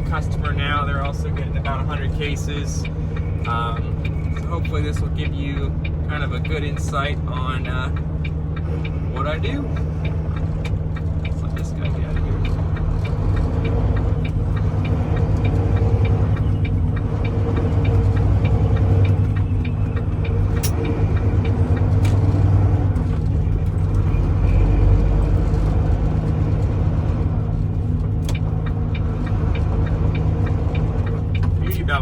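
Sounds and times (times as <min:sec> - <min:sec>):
diesel truck engine rumbling: 0:00.0 - 0:32.0
sharp clicks: 0:01.3 - 0:24.1.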